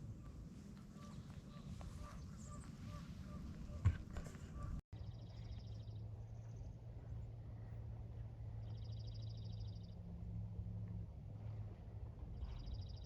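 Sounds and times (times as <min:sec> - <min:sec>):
low outdoor hum: 0:00.0 - 0:13.0.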